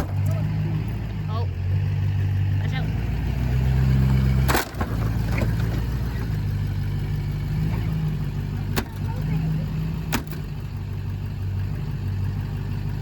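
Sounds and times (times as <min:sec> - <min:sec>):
diesel truck engine revving: 0:00.0 - 0:13.0
sharp crack: 0:04.3 - 0:05.9.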